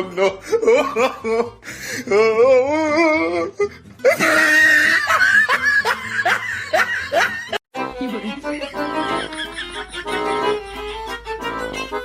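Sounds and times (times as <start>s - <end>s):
background music: 0.0s - 12.0s
person laughing: 0.0s - 12.0s.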